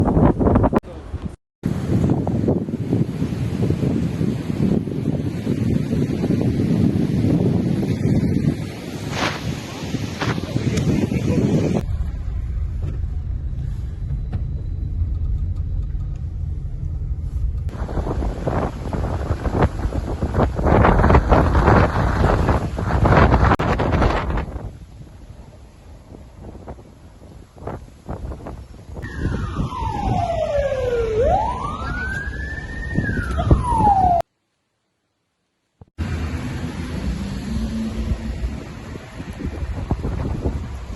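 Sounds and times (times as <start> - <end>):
wind buffeting microphone: 0.0 - 34.2, 36.6 - 40.9
siren wailing: 29.0 - 34.2, 36.9 - 39.0.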